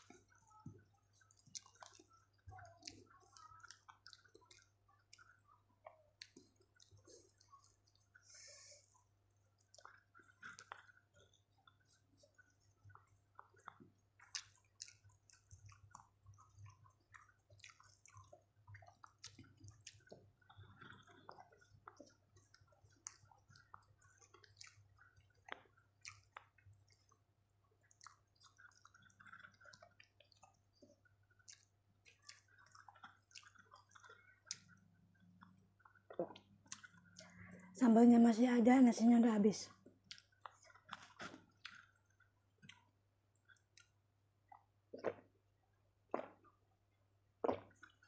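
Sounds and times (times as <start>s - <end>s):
soft clicks and crackles: 0.0s - 27.2s
faint chewing: 0.0s - 48.0s.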